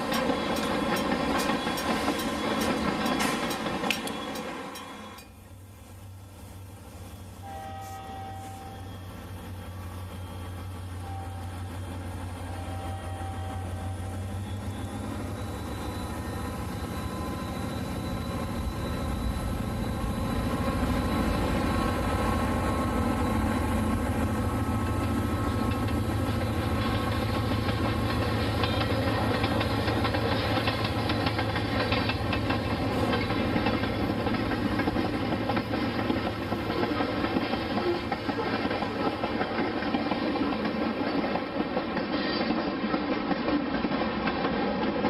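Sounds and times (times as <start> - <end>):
diesel locomotive engine humming: 0.0 - 42.1
locomotive horn blasts: 7.4 - 9.0, 11.0 - 11.6, 12.5 - 14.6.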